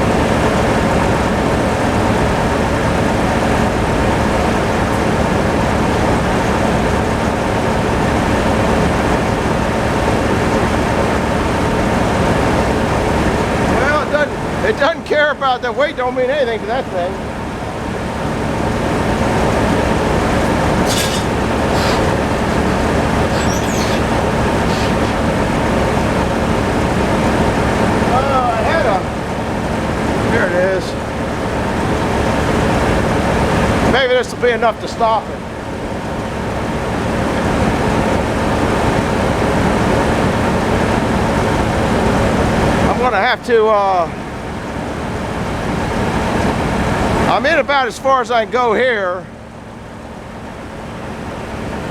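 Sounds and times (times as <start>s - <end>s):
tractor engine running: 0.0s - 48.0s
high hissing: 20.8s - 25.7s.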